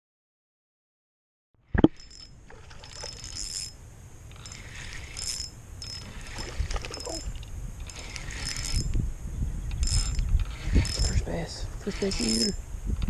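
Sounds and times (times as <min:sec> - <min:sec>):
fishing reel whirring: 0:02.0 - 0:09.0, 0:09.6 - 0:12.6.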